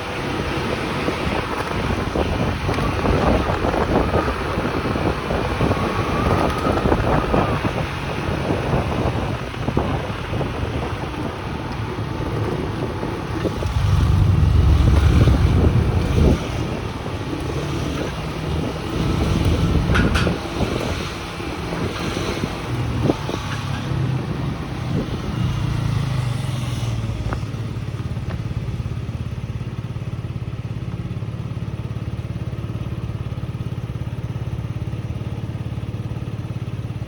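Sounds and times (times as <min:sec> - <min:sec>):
wind noise on microphone: 0:00.0 - 0:28.6
motorcycle engine running: 0:00.1 - 0:37.0.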